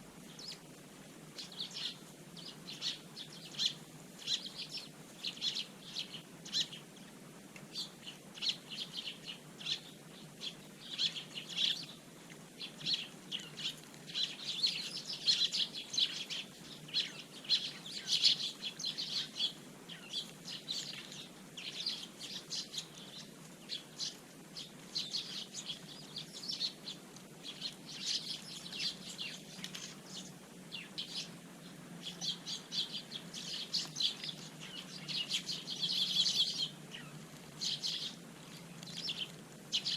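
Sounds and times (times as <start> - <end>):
sparrows chirping: 0.2 - 39.9.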